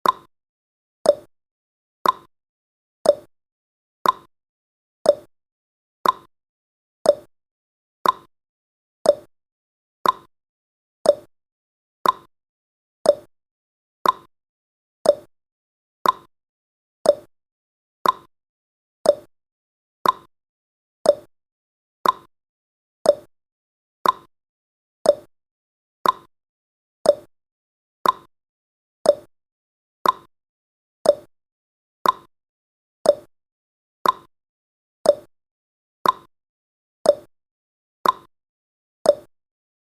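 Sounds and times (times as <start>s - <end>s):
timer ticking tick-tock: 0.0s - 0.3s, 1.0s - 1.3s, 2.0s - 2.3s, 3.0s - 3.3s, 4.0s - 4.3s, 5.0s - 5.3s, 6.0s - 6.3s, 7.0s - 7.3s, 8.0s - 8.3s, 9.0s - 9.3s, 10.0s - 10.3s, 11.0s - 11.3s, 12.0s - 12.3s, 13.0s - 13.3s, 14.0s - 14.3s, 15.0s - 15.3s, 16.0s - 16.3s, 17.0s - 17.3s, 18.0s - 18.3s, 19.0s - 19.3s, 20.0s - 20.3s, 21.0s - 21.3s, 22.0s - 22.3s, 23.0s - 23.3s, 24.0s - 24.3s, 25.0s - 25.3s, 26.0s - 26.3s, 27.0s - 27.3s, 28.0s - 28.3s, 29.0s - 29.3s, 30.0s - 30.3s, 31.0s - 31.3s, 32.0s - 32.3s, 33.0s - 33.3s, 34.0s - 34.3s, 35.0s - 35.3s, 36.0s - 36.3s, 37.0s - 37.3s, 38.0s - 38.3s, 39.0s - 39.4s.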